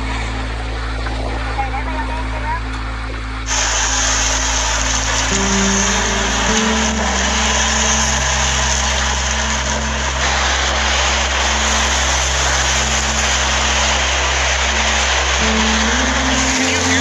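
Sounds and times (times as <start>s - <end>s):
low steady hum: 0.0s - 17.0s
loud rushing noise: 3.5s - 17.0s.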